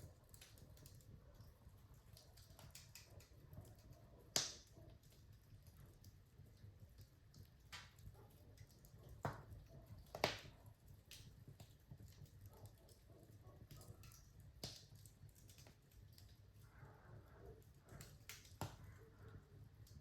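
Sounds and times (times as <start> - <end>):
wood fire crackling: 0.0 - 20.0
sharp pops from fire: 2.0 - 5.2, 7.4 - 13.0, 13.7 - 16.4, 17.9 - 19.2.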